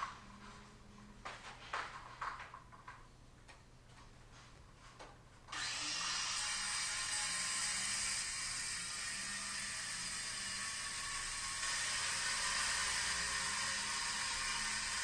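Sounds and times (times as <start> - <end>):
circular saw cutting board: 5.5 - 15.0.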